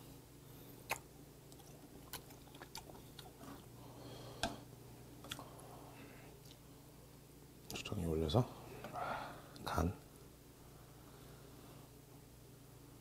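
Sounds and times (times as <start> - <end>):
close chewing: 0.9 - 3.6.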